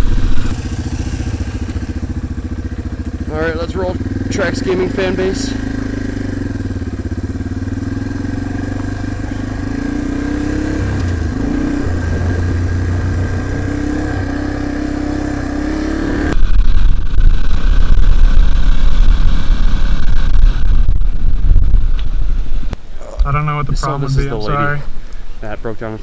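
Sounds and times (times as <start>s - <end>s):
dirt bike engine revving: 0.0s - 16.4s, 22.8s - 25.2s
deep rumble: 0.0s - 25.4s.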